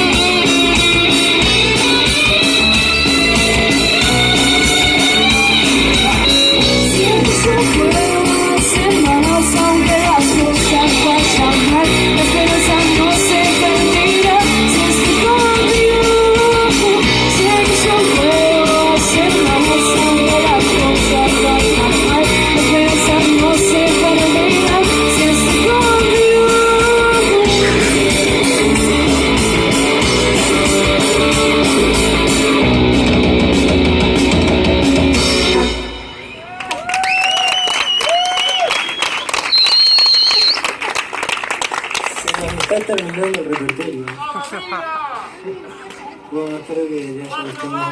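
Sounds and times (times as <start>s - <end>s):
electric guitar lead: 0.0s - 36.5s
bass guitar: 0.0s - 36.6s.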